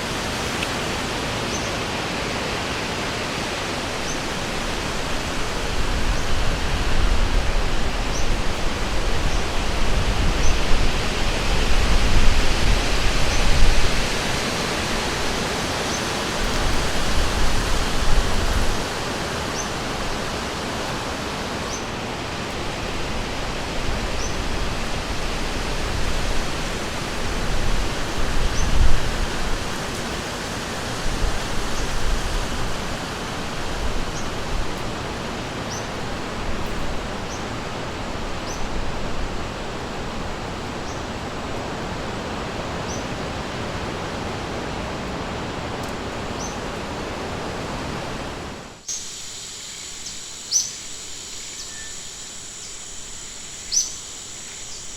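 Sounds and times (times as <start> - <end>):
river rushing: 0.0 - 54.9
steady high buzzing: 48.8 - 54.9.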